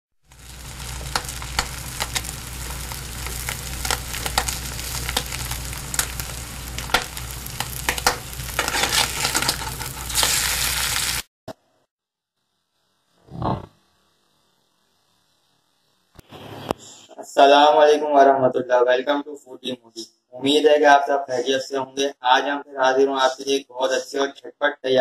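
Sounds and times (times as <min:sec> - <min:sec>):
food sizzling in hot oil: 0:00.2 - 0:11.3
low steady hum: 0:00.3 - 0:10.3.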